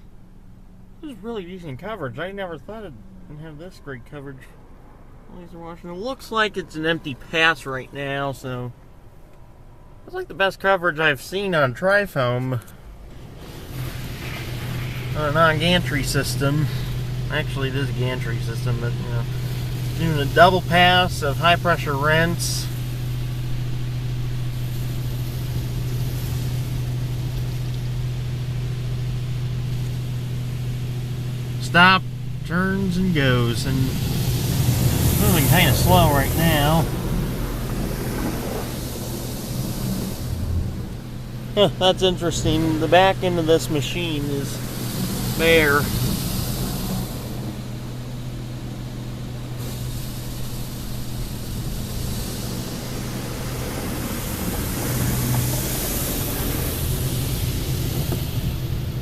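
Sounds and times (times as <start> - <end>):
constant low hum: 0.0 - 59.0
water spraying over car: 12.4 - 59.0.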